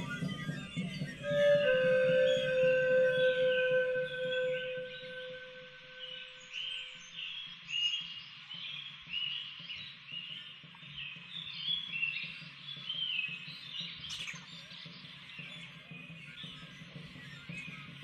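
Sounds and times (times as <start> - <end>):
rising whistle-like bird call: 0.0 - 6.8
birds chirping: 0.0 - 8.1.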